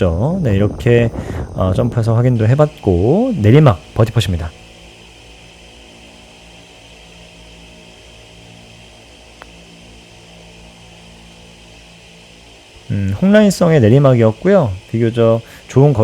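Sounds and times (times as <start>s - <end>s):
steady high buzz: 0.0s - 16.0s
steady low hum: 0.0s - 16.0s
putter striking golf ball: 5.8s - 14.5s.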